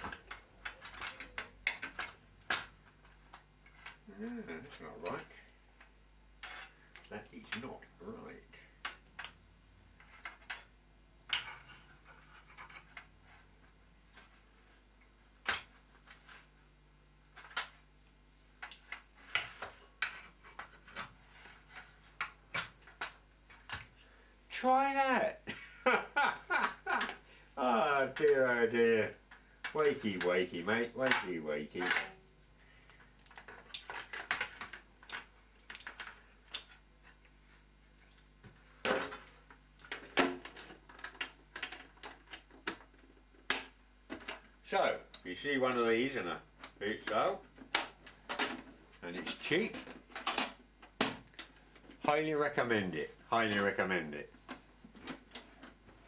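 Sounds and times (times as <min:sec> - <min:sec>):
tool parts clacking and knocking: 0:29.6 - 0:32.2, 0:46.6 - 0:52.1.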